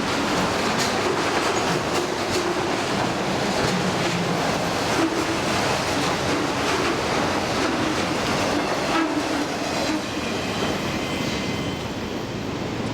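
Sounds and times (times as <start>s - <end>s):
wheels clicking over rail joints: 0.0s - 9.6s
freight train rolling on rails: 0.0s - 12.9s.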